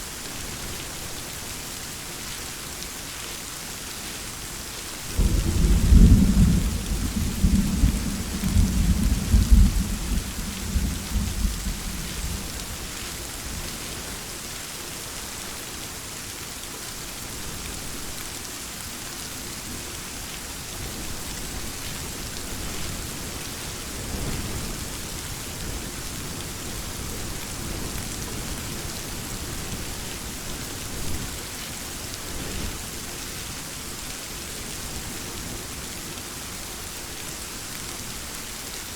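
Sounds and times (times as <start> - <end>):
heavy rain: 0.0 - 38.9
thunder rumbling: 5.2 - 12.7.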